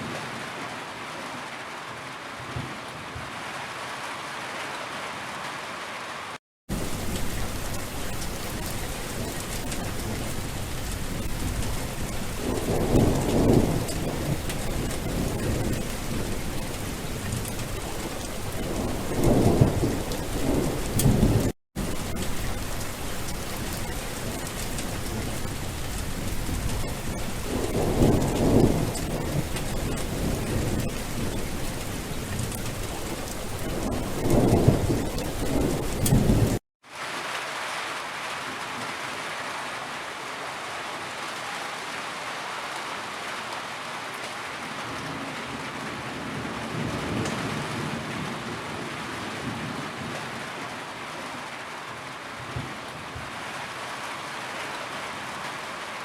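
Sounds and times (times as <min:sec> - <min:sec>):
heavy rain: 0:00.0 - 0:56.0
thunder rolling: 0:06.7 - 0:36.6.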